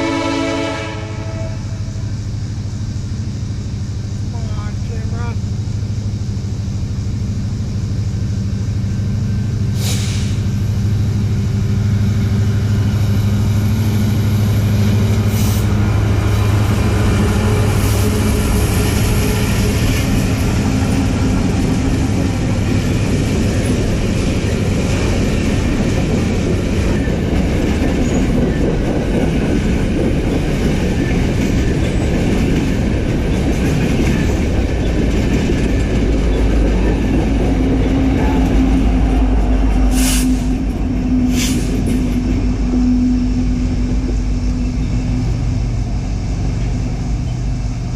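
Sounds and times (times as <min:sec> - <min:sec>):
diesel locomotive engine hum: 0:00.0 - 0:47.9
railcar wheels clattering on rails: 0:07.2 - 0:47.9.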